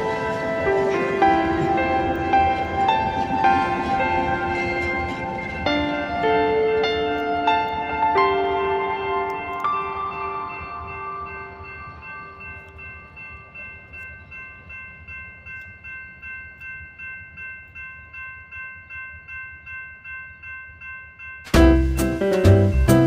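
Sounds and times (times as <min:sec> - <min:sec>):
train rumbling past: 0:00.0 - 0:16.3
crossing bell ringing: 0:00.0 - 0:23.0.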